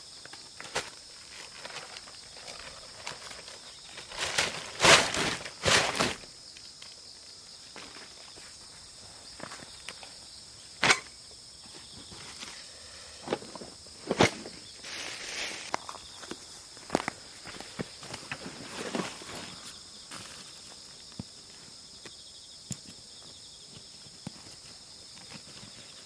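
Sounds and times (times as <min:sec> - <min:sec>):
insects chirring: 0:00.0 - 0:26.0
rustling crunching: 0:00.6 - 0:06.4, 0:11.7 - 0:21.6.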